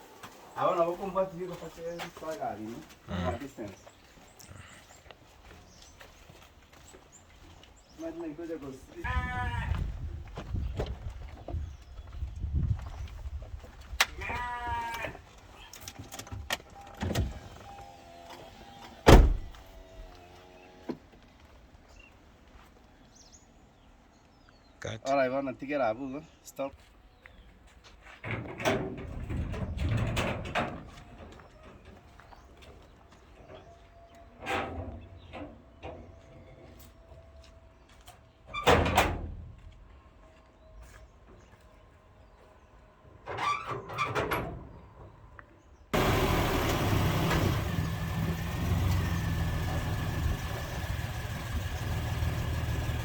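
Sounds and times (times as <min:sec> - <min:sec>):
drawn-out bleats: 0:09.0 - 0:09.8, 0:14.1 - 0:15.2
door banging shut: 0:19.0 - 0:19.6.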